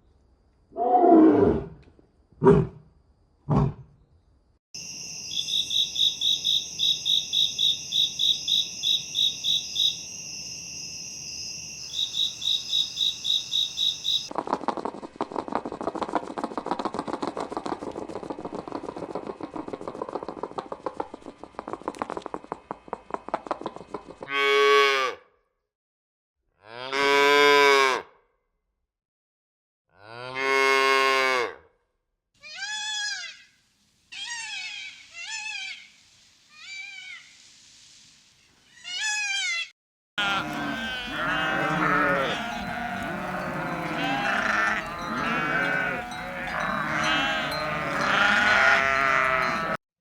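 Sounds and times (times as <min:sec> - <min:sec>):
sheep bleating: 0:40.2 - 0:49.8.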